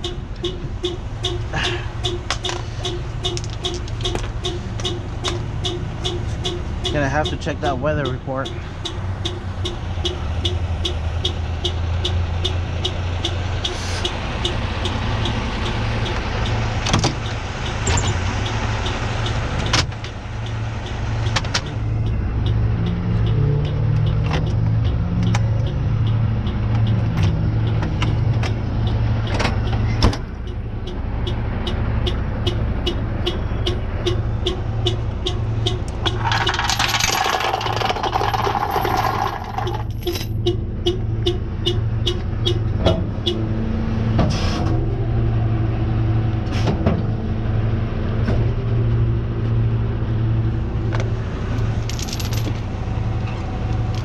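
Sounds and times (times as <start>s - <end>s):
regular ticking: 0.0s - 43.4s
truck engine idling: 0.0s - 43.4s
knocks and clicks: 2.0s - 7.4s, 20.8s - 43.1s.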